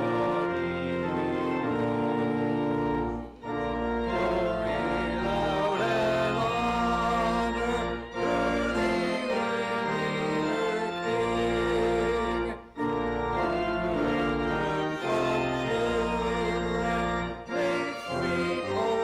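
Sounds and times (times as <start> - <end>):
church organ chords: 0.0 - 19.0.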